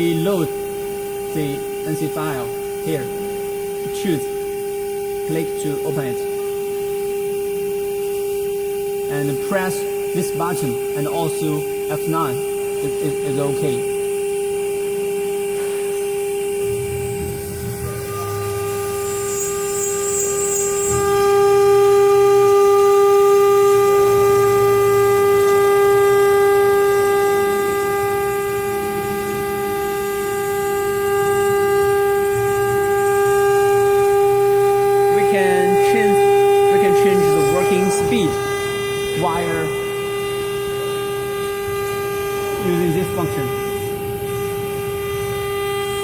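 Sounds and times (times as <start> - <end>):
low uneven rumble of carving: 0.0 - 46.0
router spindle high whine: 0.0 - 46.0.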